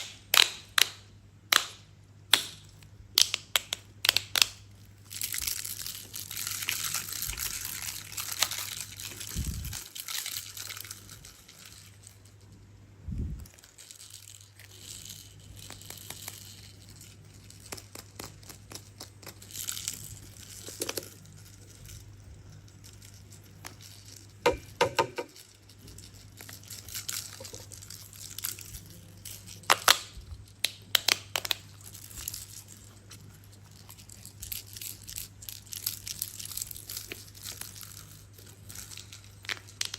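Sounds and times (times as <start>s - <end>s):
plastic crinkling and tearing: 4.1s - 12.4s, 25.2s - 39.9s.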